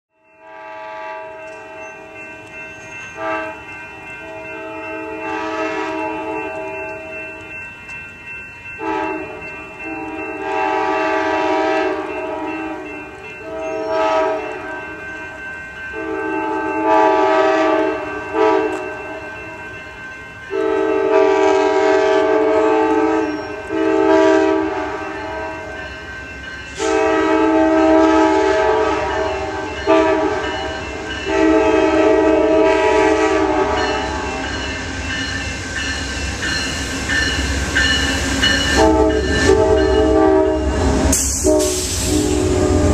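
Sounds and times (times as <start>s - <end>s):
passing train rumble: 0.2s - 42.9s
locomotive air horn blasts: 0.4s - 1.7s, 3.2s - 7.1s, 8.8s - 12.8s, 13.4s - 14.8s, 16.0s - 18.9s, 20.5s - 25.7s, 26.8s - 30.6s, 31.2s - 34.4s, 38.7s - 42.9s.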